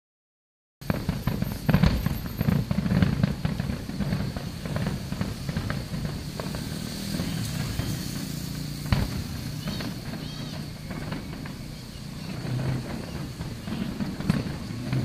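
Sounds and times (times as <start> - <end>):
distant fireworks booms and crackles: 0.8 - 15.0.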